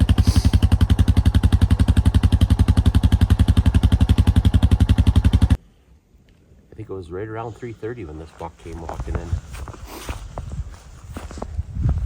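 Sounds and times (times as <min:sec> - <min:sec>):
vehicle engine chugging: 0:00.0 - 0:05.6.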